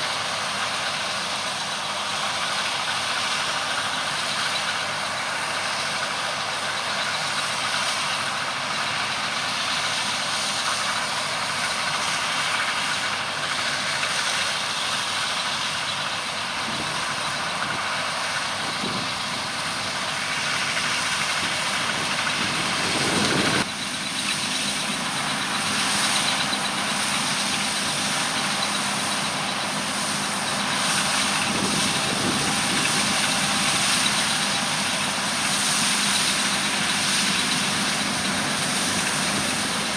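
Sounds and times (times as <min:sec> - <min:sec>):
diesel machinery running: 0:00.0 - 0:39.9.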